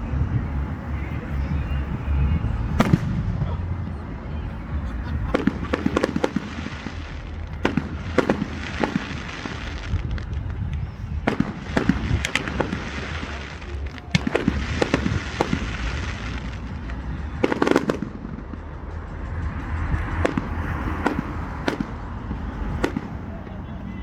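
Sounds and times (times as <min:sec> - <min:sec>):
fireworks bangs: 0:00.0 - 0:24.0
fireworks crackling hiss: 0:00.0 - 0:24.0.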